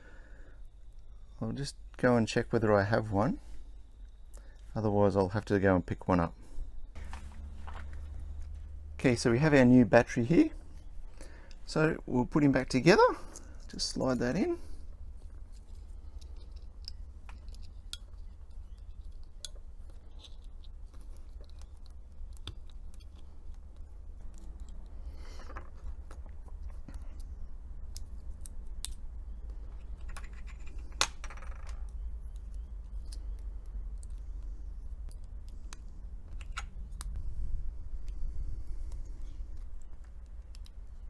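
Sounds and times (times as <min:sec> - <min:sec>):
steady low hum: 0:00.0 - 0:41.0
small metallic clicks: 0:15.2 - 0:37.2, 0:38.8 - 0:41.0.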